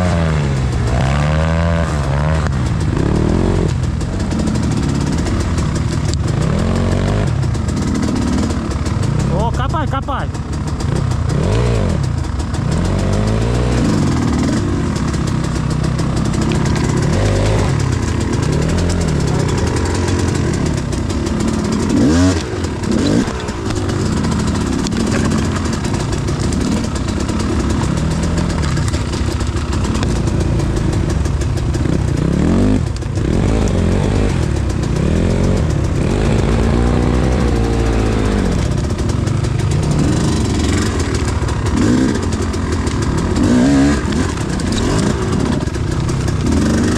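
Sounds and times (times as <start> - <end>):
motorcycle engine revving: 0.0 - 46.9
rear wheel spinning in soft ground: 10.6 - 46.9.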